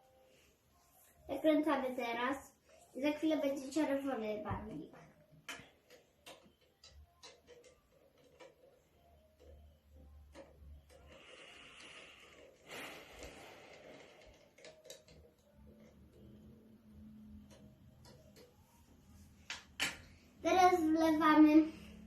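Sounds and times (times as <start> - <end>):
plastic bottles clicking: 12.3 - 16.1.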